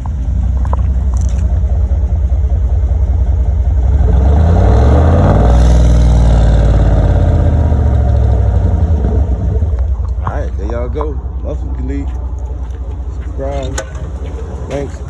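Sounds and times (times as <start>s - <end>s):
engine revving from idle: 0.0s - 10.2s.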